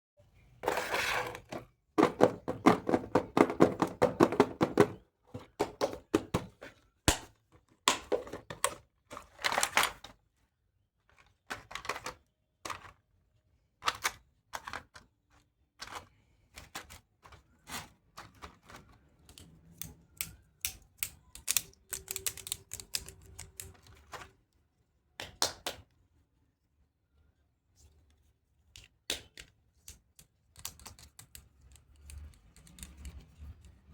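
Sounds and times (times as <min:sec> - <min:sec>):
plastic toy pieces clattering: 0:07.9 - 0:10.1, 0:21.0 - 0:24.3.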